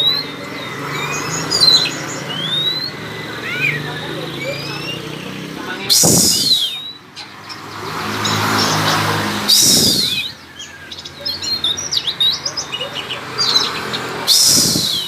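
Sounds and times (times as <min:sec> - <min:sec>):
bird singing harsh scratchy song: 0:00.0 - 0:15.0
quick varied bird chirps: 0:00.0 - 0:15.0.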